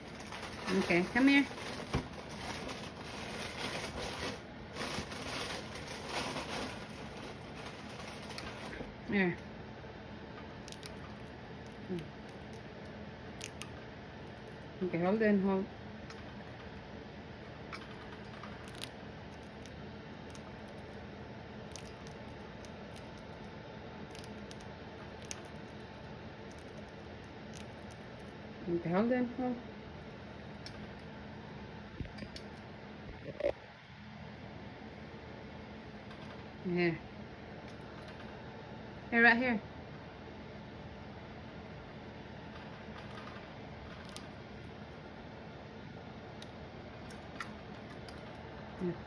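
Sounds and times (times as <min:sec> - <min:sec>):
soft rustling and scraping: 0:00.0 - 0:08.9
steady low hum: 0:00.0 - 0:49.0
bird beak nibbling clicks: 0:13.4 - 0:14.6, 0:21.6 - 0:23.4.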